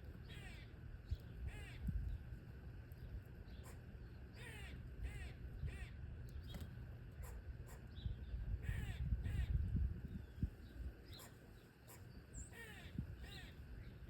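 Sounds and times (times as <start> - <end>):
harsh crow-like bird calls: 0.2 - 2.0, 3.5 - 6.1, 7.2 - 9.6, 11.0 - 14.0.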